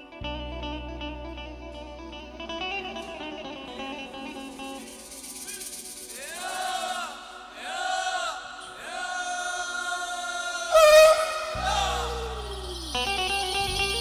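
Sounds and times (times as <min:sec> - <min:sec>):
low instrumental drone: 0:00.0 - 0:06.8, 0:10.8 - 0:14.0.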